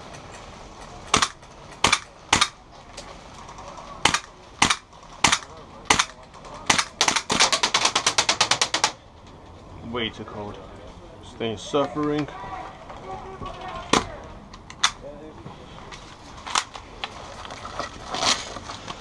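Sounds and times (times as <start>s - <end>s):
airsoft gun shots: 1.1s - 2.6s, 4.0s - 8.9s.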